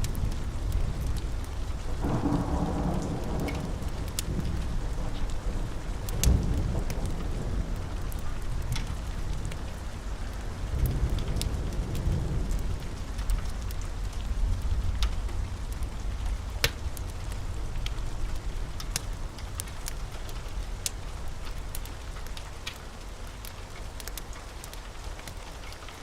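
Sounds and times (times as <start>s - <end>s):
low rolling thunder: 0.0s - 22.2s
steady rain: 0.0s - 26.0s.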